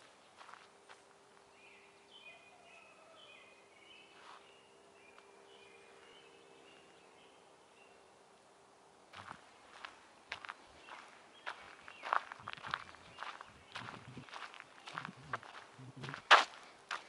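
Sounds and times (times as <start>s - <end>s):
footsteps on dirt trail: 0.0s - 1.8s, 4.1s - 4.6s, 9.1s - 17.0s
songbird chirping: 0.0s - 17.0s
woodland ambience: 0.0s - 17.0s.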